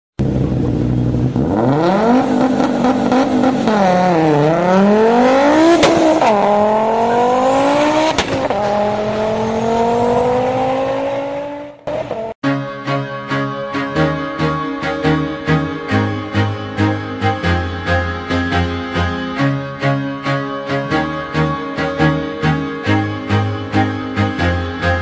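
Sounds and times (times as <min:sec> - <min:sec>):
car engine accelerating hard: 0:00.2 - 0:12.4.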